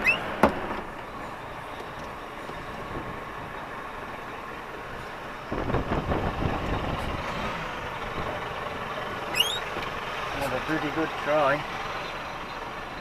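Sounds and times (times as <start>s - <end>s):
diesel engine and road noise: 0.0s - 13.0s.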